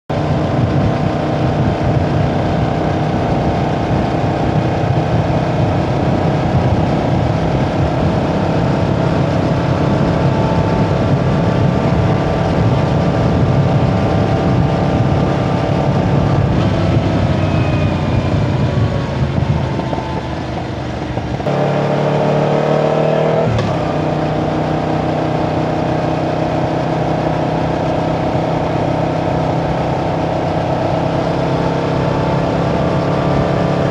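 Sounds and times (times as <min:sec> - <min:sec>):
motorcycle engine running: 0:00.1 - 0:33.9.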